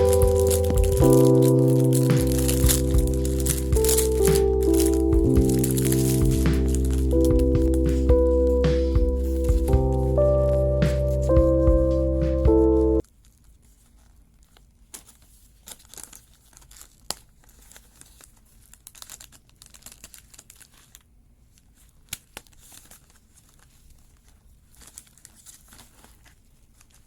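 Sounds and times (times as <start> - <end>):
packaging crinkling and rustling: 0.0 - 8.4, 13.0 - 27.0
background music: 0.0 - 13.0.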